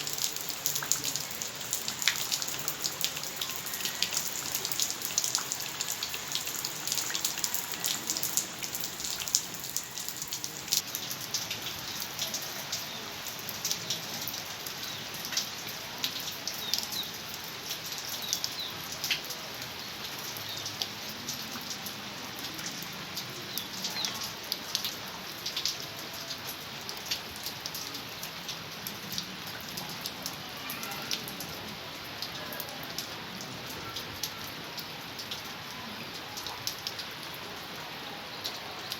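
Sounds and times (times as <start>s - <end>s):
raindrops tapping close by: 0.0s - 19.3s
heavy rain falling: 0.0s - 38.9s.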